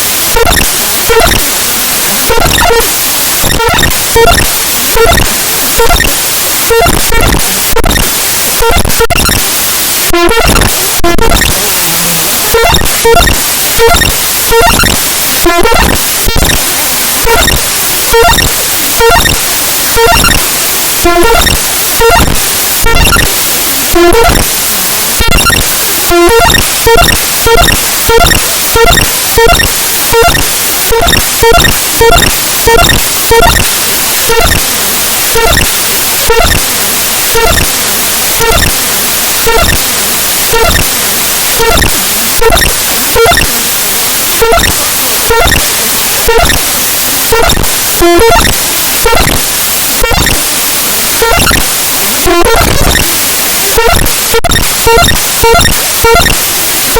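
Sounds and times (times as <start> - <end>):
pulsing harsh digital static: 0.0 - 56.9
short beeping blips: 0.3 - 1.4, 2.3 - 9.5, 10.2 - 16.6, 17.3 - 19.4, 36.3 - 36.6, 37.4 - 37.7, 39.5 - 39.8, 40.5 - 40.9, 41.6 - 43.5, 44.4 - 45.6, 51.2 - 51.6.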